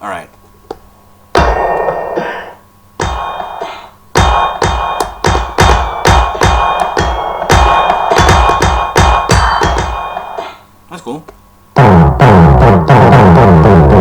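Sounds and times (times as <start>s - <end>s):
percussive synth hits: 1.3s - 2.0s, 3.0s - 10.6s, 11.8s - 14.0s.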